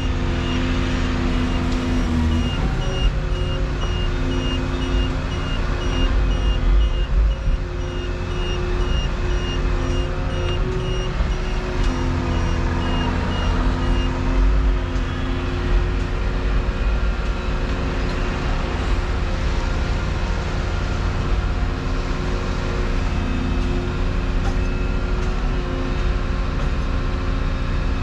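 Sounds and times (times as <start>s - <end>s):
warning alarm beeping: 0.0s - 15.7s
diesel engine of heavy machinery: 0.0s - 28.0s.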